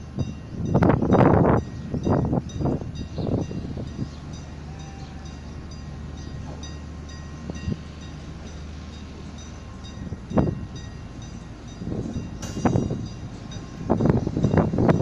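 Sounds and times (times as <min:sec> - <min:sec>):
diesel locomotive droning: 0:00.0 - 0:15.0.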